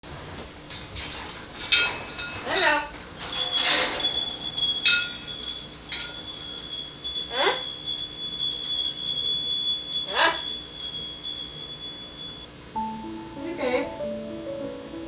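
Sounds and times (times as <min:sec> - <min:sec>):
small bells jingling: 0:00.7 - 0:12.5.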